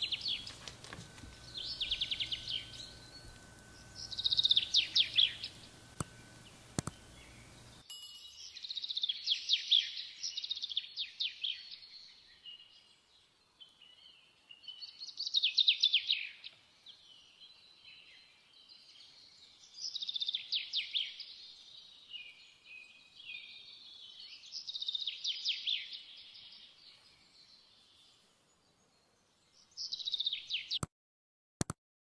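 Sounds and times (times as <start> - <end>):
bird trilling: 0.0 - 7.8
soft bird chirping: 0.0 - 30.9.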